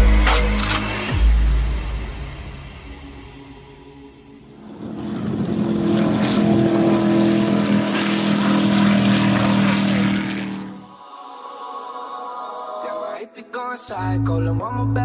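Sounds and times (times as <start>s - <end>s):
race car engine droning: 3.1s - 10.9s.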